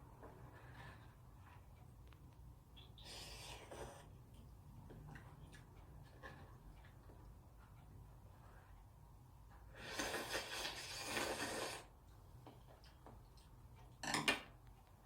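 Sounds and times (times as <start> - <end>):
slurping noodles: 3.1 - 4.1, 9.8 - 11.9.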